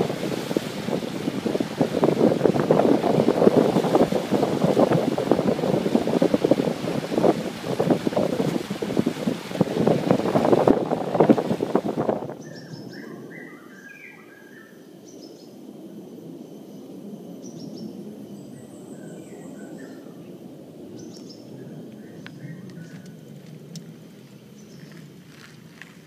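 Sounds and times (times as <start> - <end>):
birds chirping and whistling: 12.4 - 15.5.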